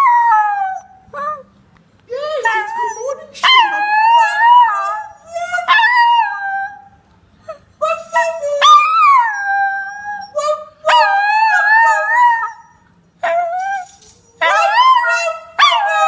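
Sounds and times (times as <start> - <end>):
dog howling: 7.8 - 16.0.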